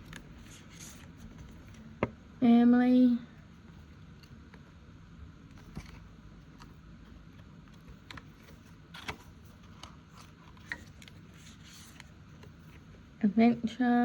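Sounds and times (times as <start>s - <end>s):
paper envelopes rustling: 5.5s - 12.9s.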